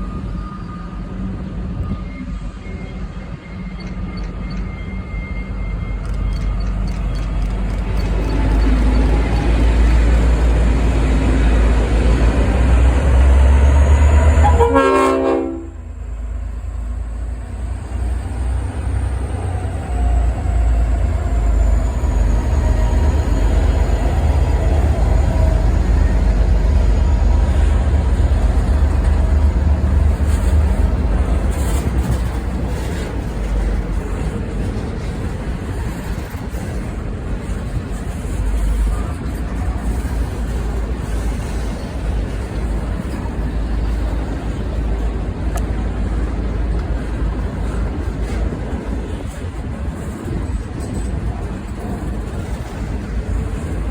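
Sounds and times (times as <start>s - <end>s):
goods train rumbling: 0.0s - 53.9s
train horn blast: 13.7s - 16.1s.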